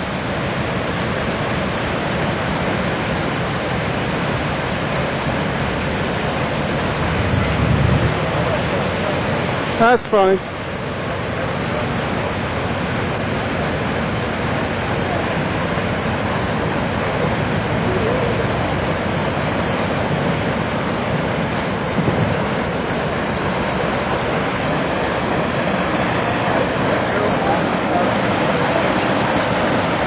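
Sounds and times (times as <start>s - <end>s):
water rushing into lock chamber: 0.0s - 30.0s.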